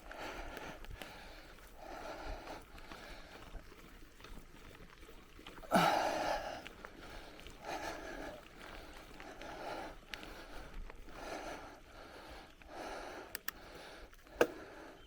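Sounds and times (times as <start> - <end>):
person breathing hard: 0.0 - 3.8, 5.6 - 15.0.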